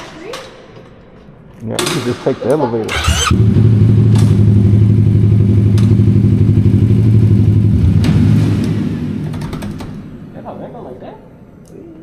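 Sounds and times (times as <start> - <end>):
motorcycle engine idling: 2.9 - 11.9.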